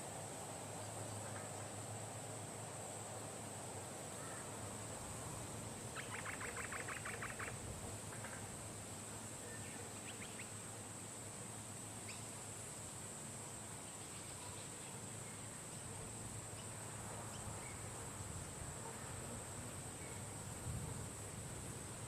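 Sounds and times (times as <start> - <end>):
insects droning: 0.0 - 22.0
bird chattering: 6.0 - 8.4.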